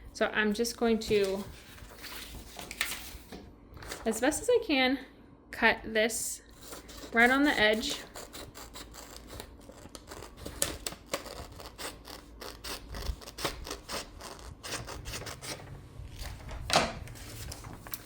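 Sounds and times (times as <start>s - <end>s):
scissors snipping paper: 6.6s - 15.6s.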